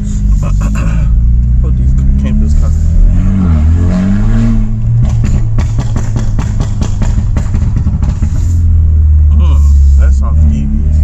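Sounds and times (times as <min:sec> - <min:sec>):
car engine revving: 0:00.0 - 0:11.0
exhaust pops and bangs: 0:04.8 - 0:08.7.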